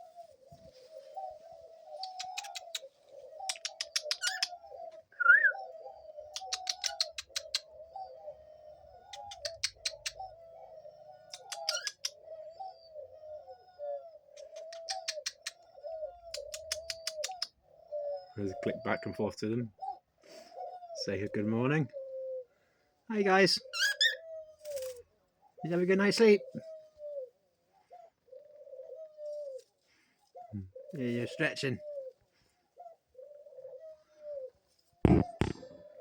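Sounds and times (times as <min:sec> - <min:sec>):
doves cooing: 0:00.0 - 0:36.0
birds rapid clicking: 0:01.9 - 0:05.6, 0:06.2 - 0:07.8, 0:09.0 - 0:10.4, 0:11.3 - 0:12.3, 0:14.3 - 0:17.5, 0:23.8 - 0:25.0
short rising bird chirp: 0:01.9 - 0:05.7.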